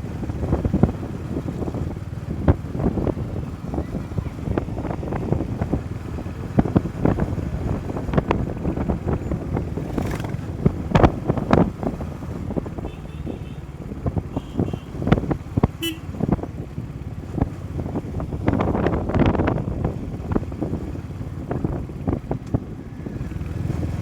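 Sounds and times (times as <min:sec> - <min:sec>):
road and vehicle noise: 0:00.0 - 0:24.0
wind buffeting microphone: 0:00.0 - 0:24.0
faint vehicle horn toots: 0:12.8 - 0:13.7, 0:14.3 - 0:15.0, 0:15.8 - 0:16.2.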